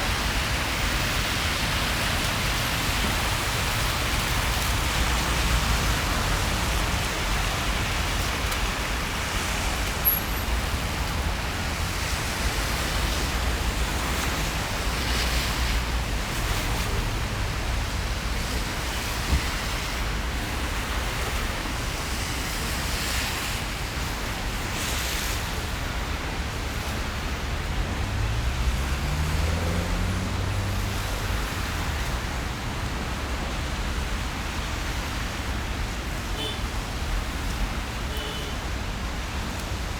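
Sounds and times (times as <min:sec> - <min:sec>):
rain hissing: 0:00.0 - 0:22.1
city traffic rumble on wet streets: 0:00.0 - 0:39.9
vehicle engine pulling away: 0:27.8 - 0:31.4.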